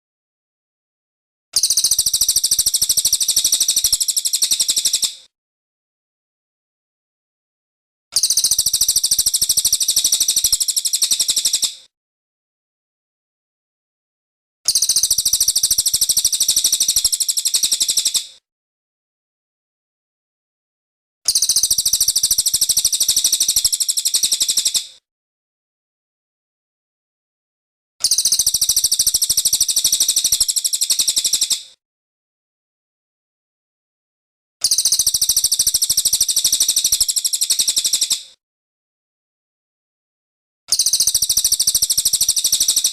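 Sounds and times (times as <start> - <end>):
bird singing high-pitched trill: 1.6 - 5.1, 8.2 - 11.7, 14.7 - 18.2, 21.3 - 24.8, 28.0 - 31.6, 34.6 - 38.2, 40.7 - 42.9.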